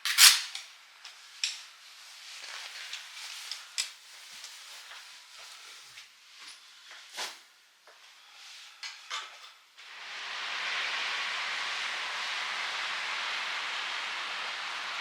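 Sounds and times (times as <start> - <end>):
steady rushing hiss: 9.8 - 15.0.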